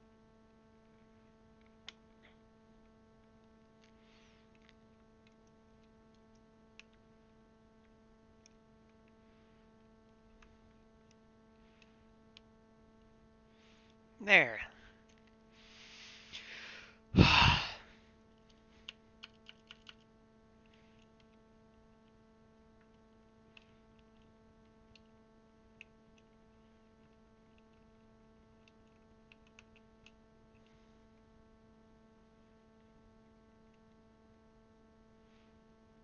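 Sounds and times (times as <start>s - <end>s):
electrical hum: 0.0s - 36.0s
person sighing: 16.4s - 18.0s
keycaps clicking onto keyboard: 18.4s - 20.1s, 28.6s - 30.2s.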